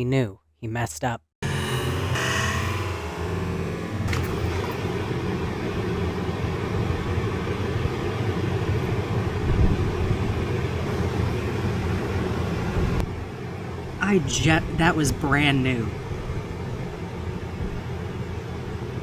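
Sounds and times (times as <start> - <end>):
steady low rumbling: 3.0 - 19.0.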